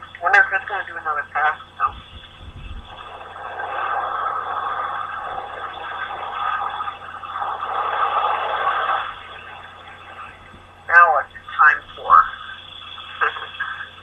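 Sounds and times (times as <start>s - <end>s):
car wash water spray rushing: 2.0s - 10.7s.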